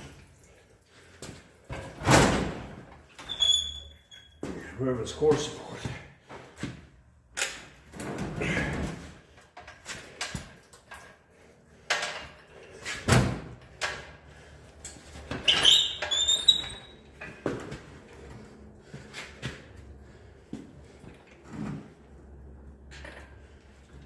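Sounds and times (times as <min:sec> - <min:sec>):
metal squealing on metal: 0:15.5 - 0:17.0.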